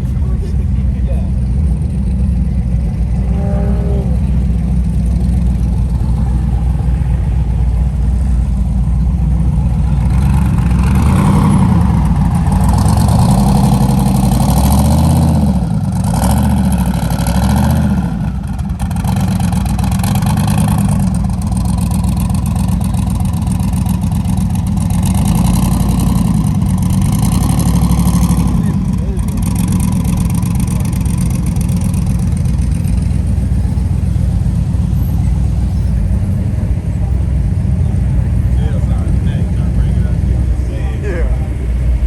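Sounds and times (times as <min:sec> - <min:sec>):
car engines driving past: 0:00.0 - 0:42.0.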